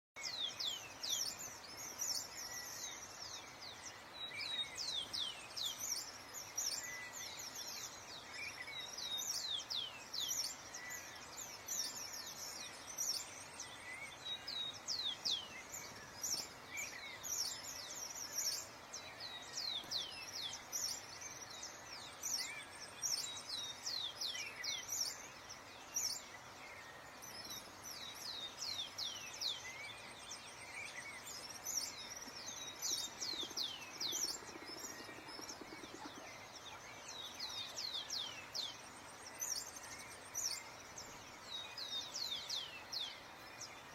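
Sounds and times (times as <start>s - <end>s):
small birds chirping: 0.1s - 43.9s
background hiss: 0.2s - 43.9s.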